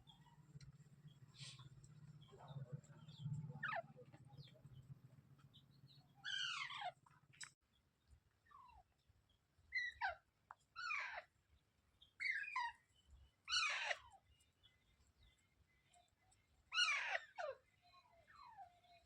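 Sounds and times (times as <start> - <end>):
parrot harsh calls: 6.2 - 7.0, 10.8 - 11.3, 13.5 - 14.0, 16.7 - 17.6.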